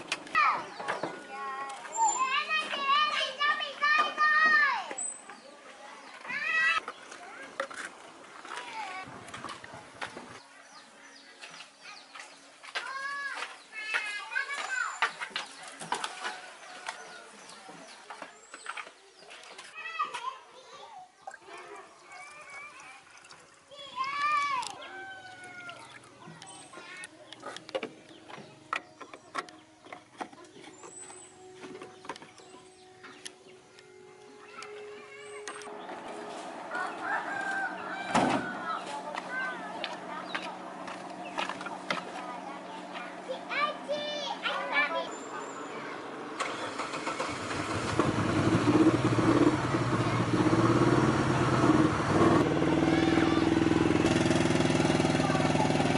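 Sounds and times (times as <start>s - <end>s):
car engine starting and idling: 46.3s - 55.9s.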